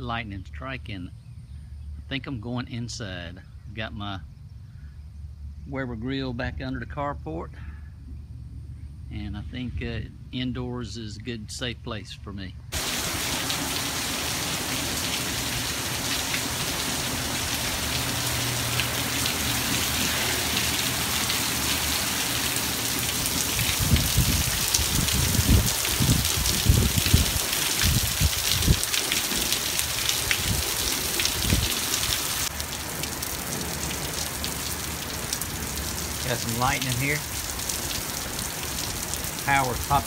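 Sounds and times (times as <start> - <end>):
heavy rain hissing: 12.7 - 40.0.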